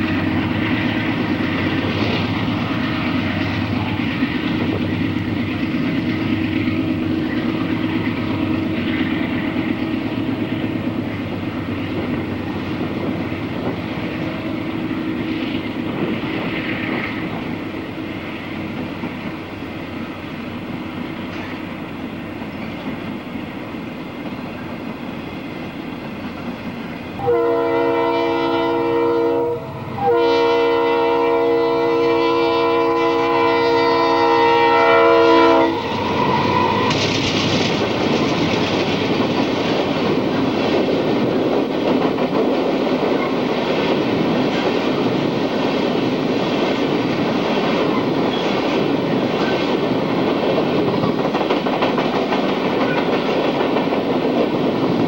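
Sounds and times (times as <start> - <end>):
locomotive horn blasts: 27.2 - 36.9.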